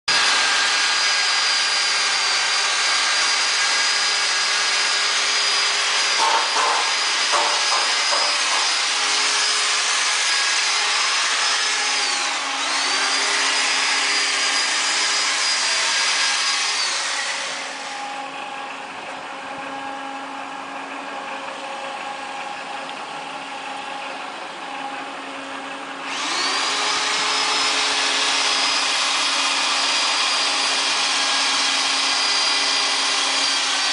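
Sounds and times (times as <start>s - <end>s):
knocks: 6.2s - 8.8s
conveyor motor whine: 17.4s - 30.0s.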